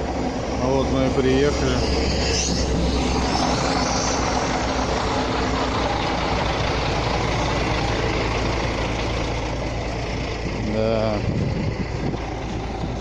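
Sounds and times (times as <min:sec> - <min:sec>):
even rushing noise: 0:00.0 - 0:09.7
truck engine humming: 0:00.0 - 0:13.0.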